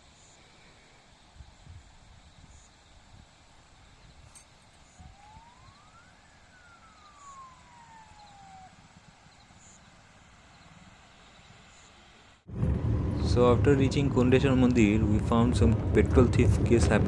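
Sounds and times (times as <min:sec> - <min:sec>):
low rumble: 0:12.5 - 0:17.0.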